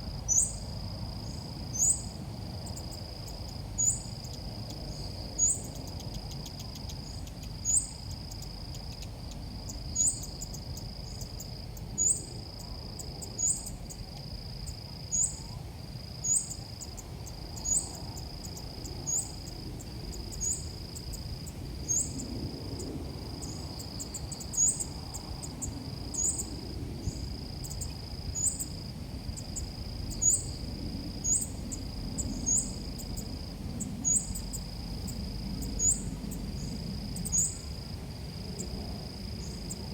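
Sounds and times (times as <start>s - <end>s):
insect-like trill: 23.4s - 39.9s.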